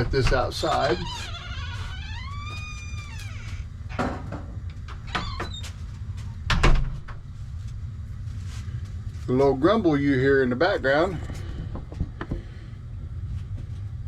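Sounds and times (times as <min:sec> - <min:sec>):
door squeaking open: 0:00.0 - 0:04.1, 0:05.1 - 0:05.8.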